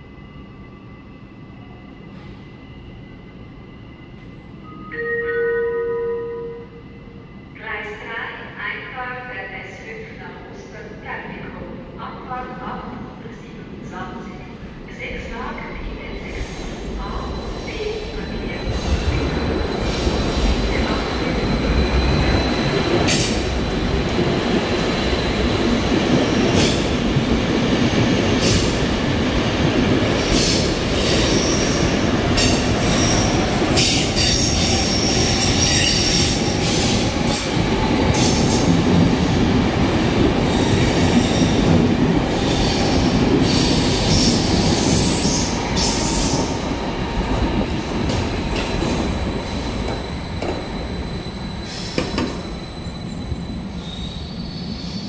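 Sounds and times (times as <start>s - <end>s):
train rolling rumble: 13.6s - 54.4s.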